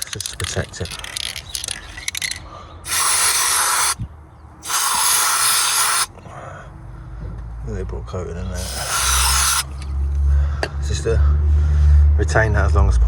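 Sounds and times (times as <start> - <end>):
small handling clicks: 0.0 - 2.5
aerosol can spraying: 2.9 - 4.0, 4.6 - 6.1, 8.6 - 9.9.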